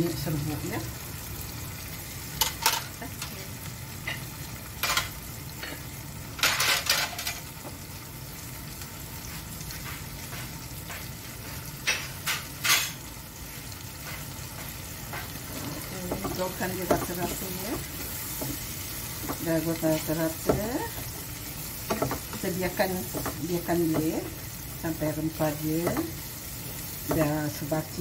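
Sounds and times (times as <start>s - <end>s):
food sizzling in a pan: 0.0s - 28.0s
utensils and dishes clinking: 4.8s - 7.5s.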